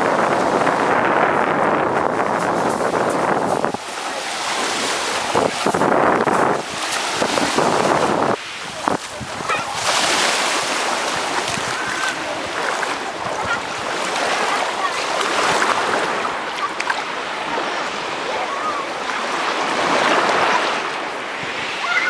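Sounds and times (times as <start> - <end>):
sea waves washing on shore: 0.0 - 22.0
wind buffeting microphone: 0.0 - 22.0.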